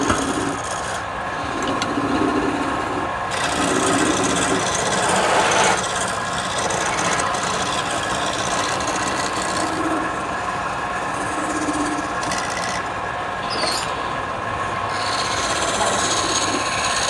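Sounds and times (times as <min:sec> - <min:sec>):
tool scraping spinning wood: 0:00.0 - 0:14.2, 0:14.8 - 0:17.0
wood lathe hum: 0:00.0 - 0:17.0
high squeak: 0:13.4 - 0:14.0.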